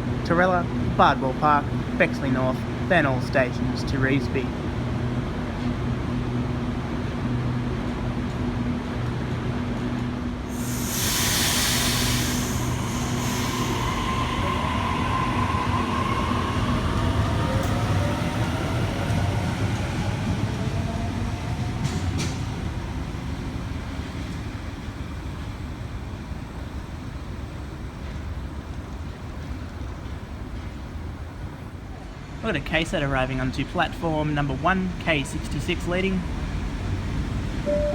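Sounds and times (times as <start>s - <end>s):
electric train whine: 10.3s - 28.8s
air brakes hissing: 10.5s - 14.7s.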